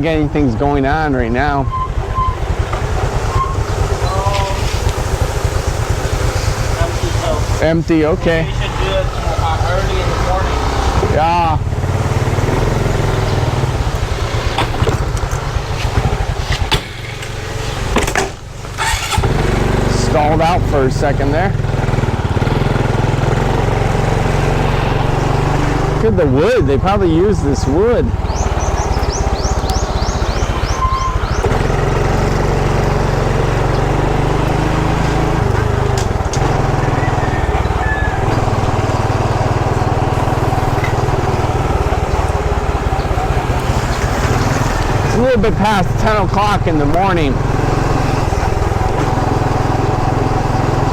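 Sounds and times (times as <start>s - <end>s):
steady rushing noise: 0.0s - 18.6s
motorcycle engine faltering and stalling: 0.0s - 50.9s.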